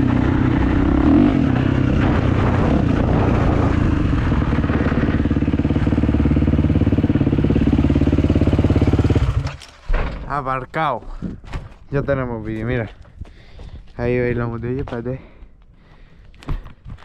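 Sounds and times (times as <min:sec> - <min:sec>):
motocross bike engine idling: 0:03.5 - 0:09.5.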